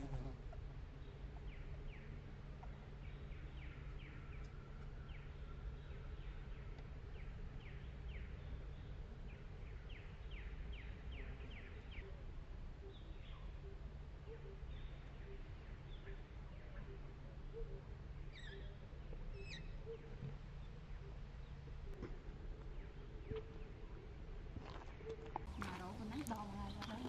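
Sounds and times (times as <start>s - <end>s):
low outdoor rumble: 0.0s - 27.0s
small birds chirping: 12.8s - 27.0s.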